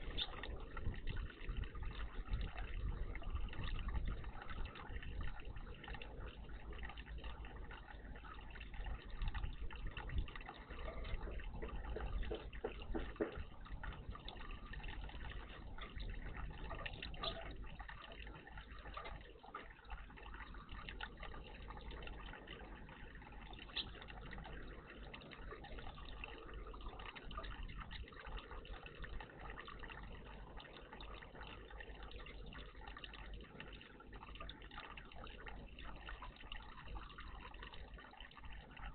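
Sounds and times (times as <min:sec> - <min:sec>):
low steady rumble: 0:00.0 - 0:38.9
water trickling in bird bath: 0:00.0 - 0:38.9.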